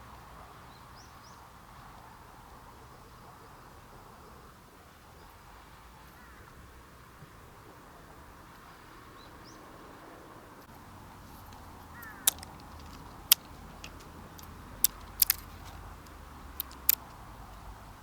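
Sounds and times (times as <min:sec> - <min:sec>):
crow cawing: 0:06.2 - 0:06.5, 0:11.9 - 0:12.4
sharp clicks or pops: 0:11.5 - 0:17.2.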